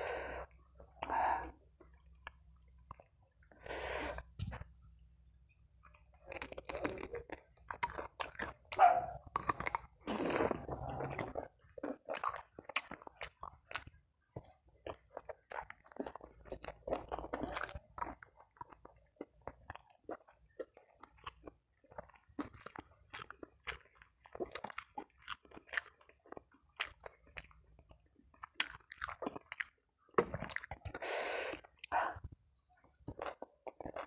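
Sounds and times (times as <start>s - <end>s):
person breathing: 0.0s - 1.6s, 3.5s - 4.3s, 31.0s - 32.3s
biting and chewing crunchy food: 0.0s - 34.0s.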